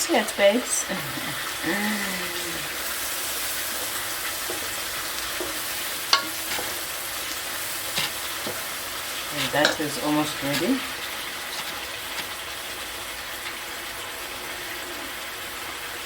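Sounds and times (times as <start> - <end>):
food sizzling in a pan: 0.0 - 16.0
utensil tapping on pan: 4.4 - 6.9, 7.8 - 8.8, 9.4 - 12.4.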